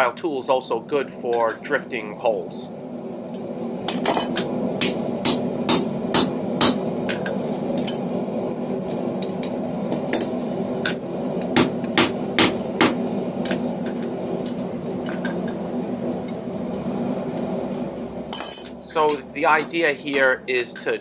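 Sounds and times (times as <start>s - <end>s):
hammer striking steel on anvil: 3.9s - 6.8s, 11.6s - 13.0s, 18.3s - 20.4s.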